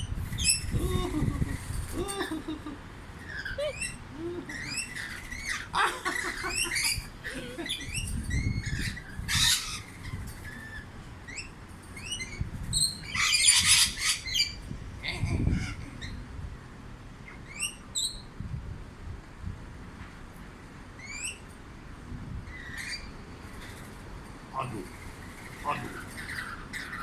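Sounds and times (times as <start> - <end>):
pet birds chirping: 3.2 - 14.6, 22.5 - 27.0
harsh bird calls: 3.2 - 16.2, 22.5 - 27.0.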